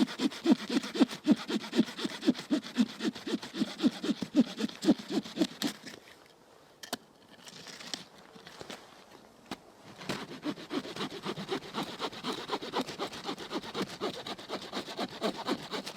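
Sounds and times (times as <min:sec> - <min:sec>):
hand saw cutting: 0:00.0 - 0:06.0, 0:10.0 - 0:15.9.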